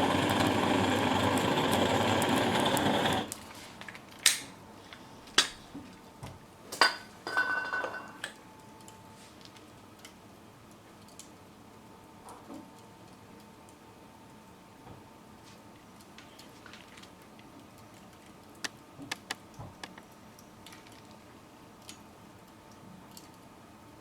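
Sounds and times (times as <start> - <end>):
gas torch hissing: 0.0 - 3.4.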